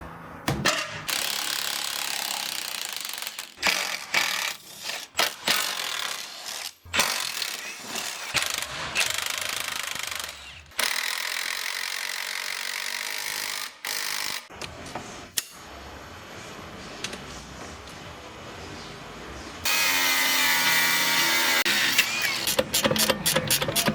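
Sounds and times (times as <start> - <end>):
pneumatic air tool hammering: 1.0 - 14.5, 19.7 - 23.9.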